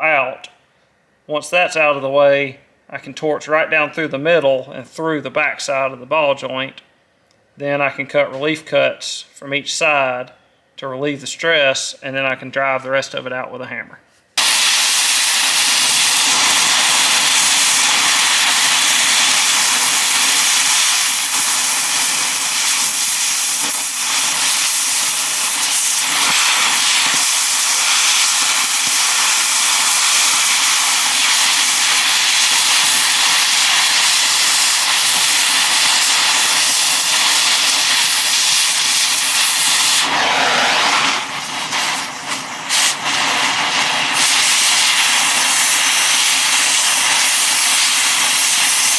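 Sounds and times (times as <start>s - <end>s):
cutting torch hissing: 14.4s - 48.9s.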